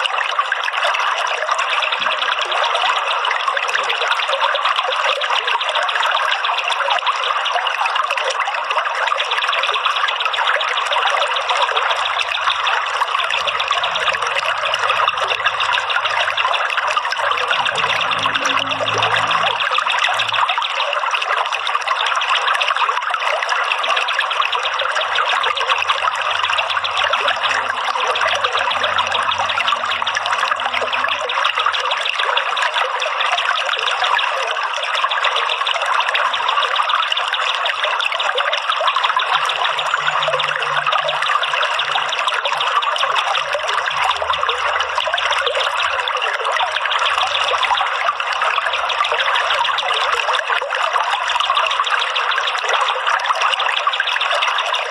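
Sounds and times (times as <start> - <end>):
water trickling: 0.0 - 54.9.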